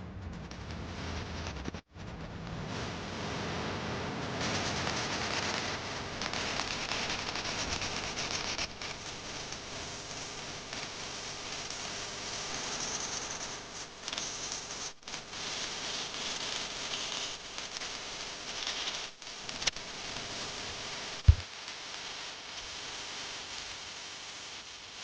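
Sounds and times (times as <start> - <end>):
loud low thump: 21.2 - 21.4.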